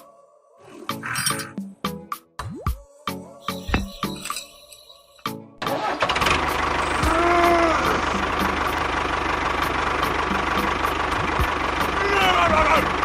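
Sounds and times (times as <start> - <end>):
small engine idling: 5.6 - 13.0.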